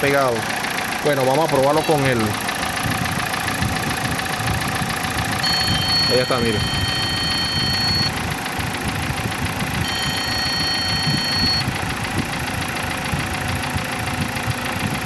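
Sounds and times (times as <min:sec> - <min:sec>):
car engine idling with rattle: 0:00.0 - 0:15.0
high electronic tone: 0:05.4 - 0:08.2, 0:09.8 - 0:11.7.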